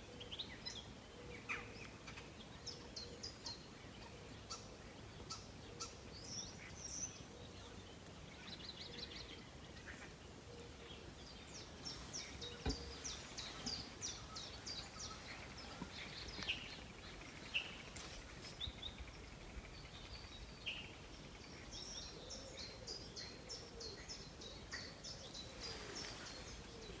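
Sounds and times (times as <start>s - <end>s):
faint steady hiss: 0.0s - 27.0s
songbirds chirping and trilling: 0.0s - 27.0s.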